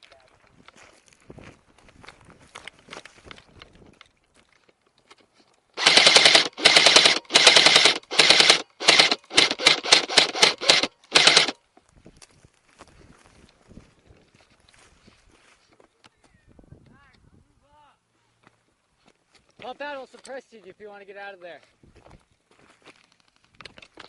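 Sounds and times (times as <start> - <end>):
airsoft gun firing full-auto bursts: 5.8 - 11.6.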